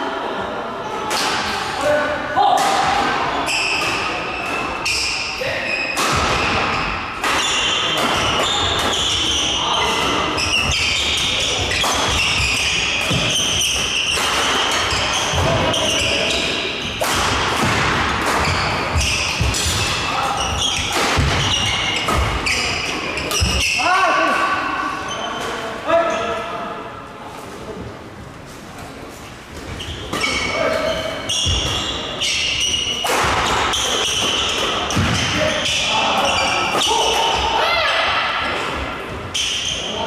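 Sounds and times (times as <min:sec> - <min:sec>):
rackets hitting shuttlecock: 0:05.9 - 0:23.8, 0:31.4 - 0:37.4.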